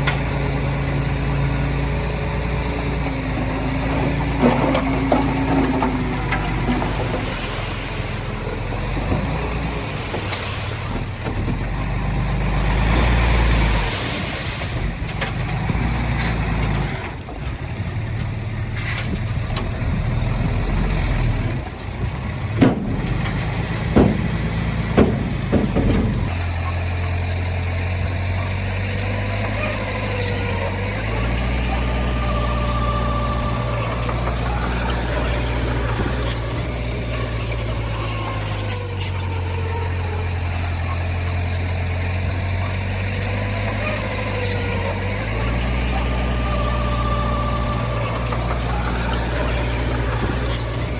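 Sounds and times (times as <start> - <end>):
diesel machinery engine drone: 0.0 - 50.9.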